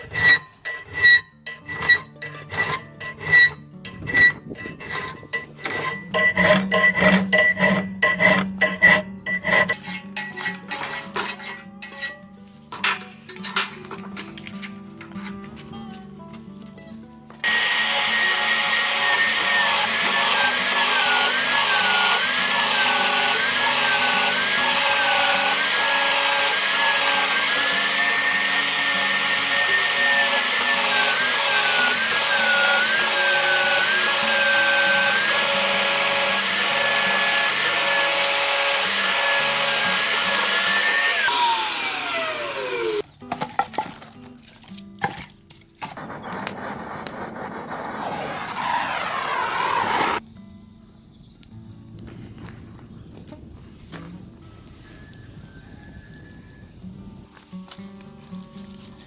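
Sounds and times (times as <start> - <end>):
electric power tool running: 17.4 - 43.1, 48.0 - 50.2.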